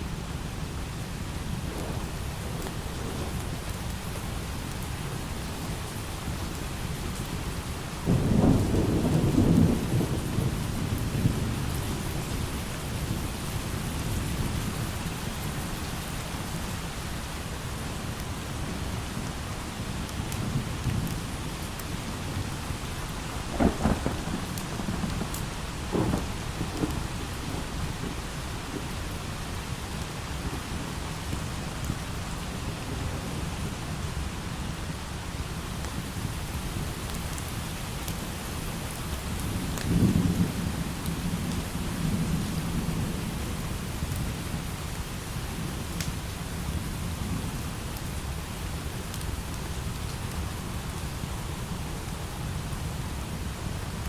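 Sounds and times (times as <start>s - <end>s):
light rain: 0.0s - 54.0s
low rumble of thunder: 0.1s - 16.8s, 18.6s - 35.0s, 35.6s - 49.0s
thunderclap rumbling: 1.3s - 5.2s, 8.1s - 14.7s, 22.3s - 31.0s.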